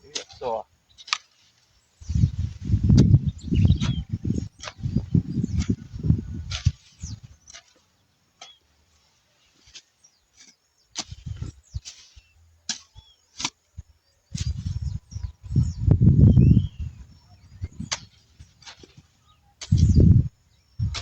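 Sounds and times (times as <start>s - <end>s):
hoe chopping into soil: 0.1s - 1.6s, 6.4s - 8.6s, 9.6s - 13.8s, 17.8s - 20.0s.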